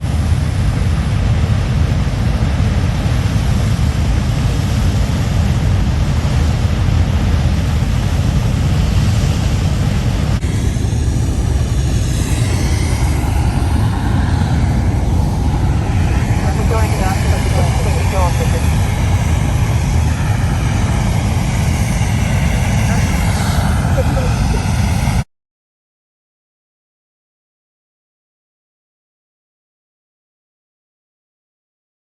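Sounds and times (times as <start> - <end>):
roar of burning gas jet: 0.0 - 25.2.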